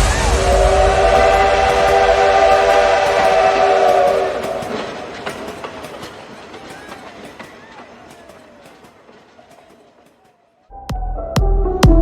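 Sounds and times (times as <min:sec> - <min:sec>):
train whistle chord: 0:00.0 - 0:04.9.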